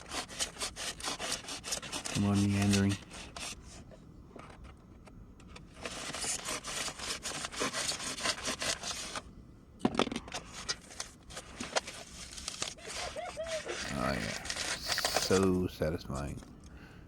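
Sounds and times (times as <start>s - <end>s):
blade scraping rigid foam: 0.0s - 3.8s, 5.7s - 9.3s, 10.3s - 15.6s.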